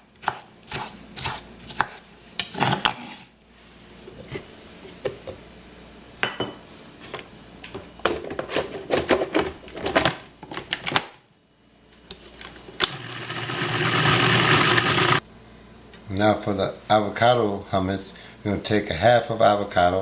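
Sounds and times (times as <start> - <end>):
knife chopping on cutting board: 0.2 - 2.0
food processor motor: 12.8 - 15.2.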